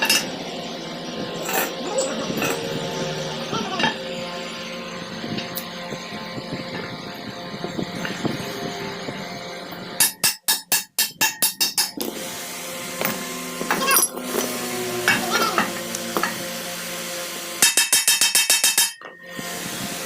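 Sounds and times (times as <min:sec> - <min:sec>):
ringing metallic tones: 0:17.8 - 0:19.4.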